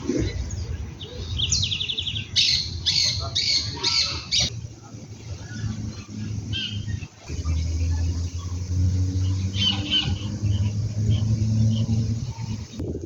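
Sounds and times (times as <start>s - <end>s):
birds chirping: 0.0s - 13.0s
steady low hum: 4.4s - 13.0s.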